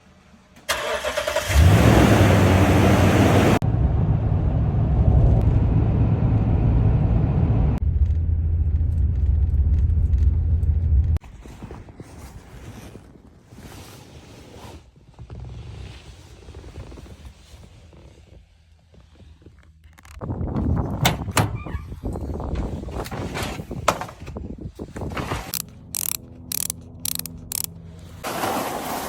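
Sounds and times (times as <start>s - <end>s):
truck engine starting and running: 0.6s - 11.2s, 25.3s - 28.8s
rustling: 11.2s - 20.3s.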